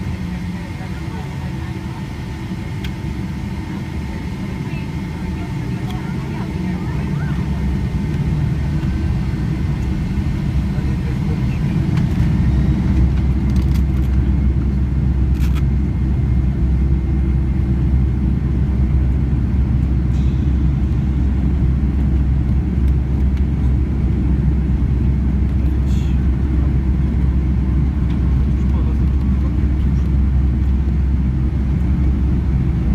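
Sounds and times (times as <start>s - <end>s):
airplane cabin engine rumble: 0.0s - 32.9s.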